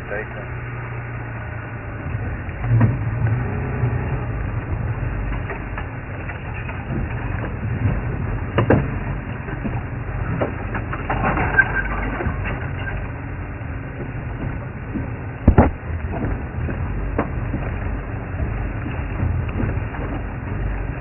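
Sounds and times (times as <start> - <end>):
vehicle engine rumble: 0.0 - 21.0
knocks and cracks: 15.5 - 16.4.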